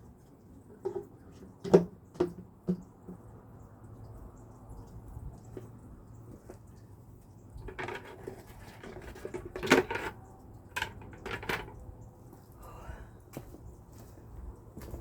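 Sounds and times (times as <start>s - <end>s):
lid knocking onto bucket: 0.9s - 2.8s, 10.8s - 11.8s.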